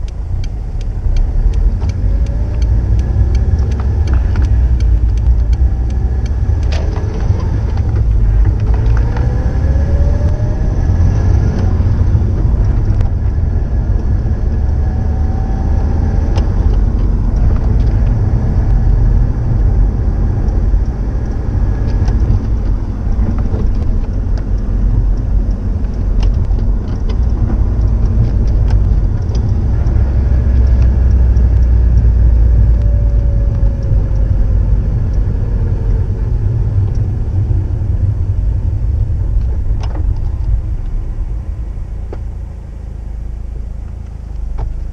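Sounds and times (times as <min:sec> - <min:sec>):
deep car exhaust rumble: 0:00.0 - 0:44.9.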